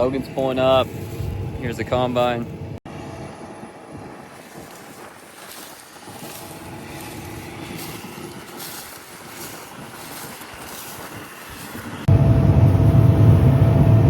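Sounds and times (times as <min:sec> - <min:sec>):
harvest machinery running: 0:00.0 - 0:14.0
wind noise on microphone: 0:00.0 - 0:14.0.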